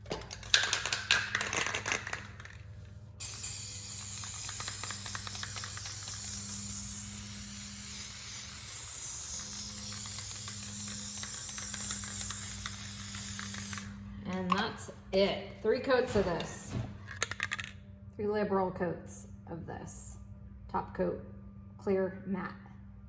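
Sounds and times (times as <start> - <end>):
aerosol can spraying hiss: 3.2 - 13.9
spray can clicks: 3.2 - 14.6.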